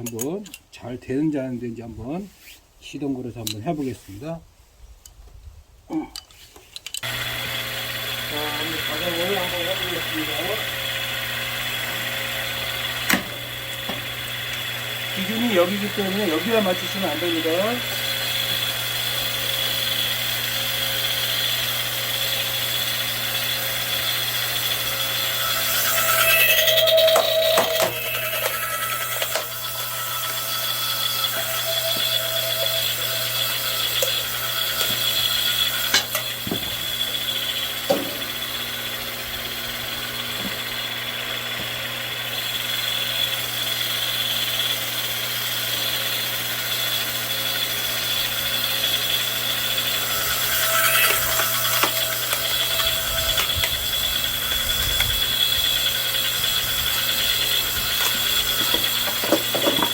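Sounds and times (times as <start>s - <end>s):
log splitter engine running: 7.0s - 59.9s
sharp metallic knocks: 25.6s - 29.6s.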